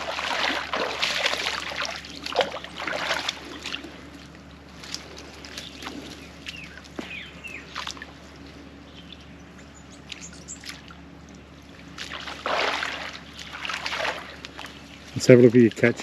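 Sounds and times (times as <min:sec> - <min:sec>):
water trickling: 0:00.0 - 0:07.0
water splashing: 0:00.0 - 0:08.4, 0:10.0 - 0:16.0
birds chirping: 0:00.0 - 0:16.0.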